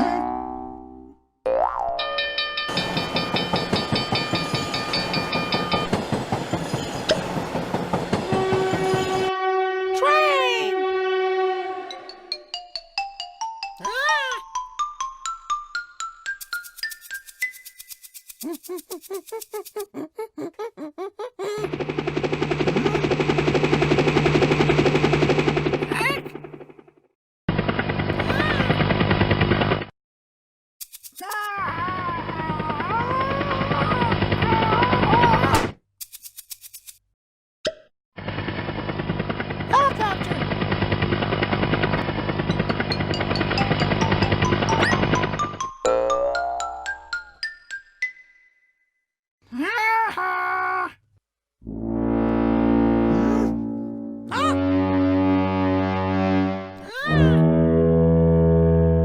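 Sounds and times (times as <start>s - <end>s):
train wheels clattering on rails: 2.7s - 9.3s
cartoon mechanical rattle: 16.4s - 20.0s, 30.8s - 31.6s
bouncy musical notes: 42.8s - 48.5s.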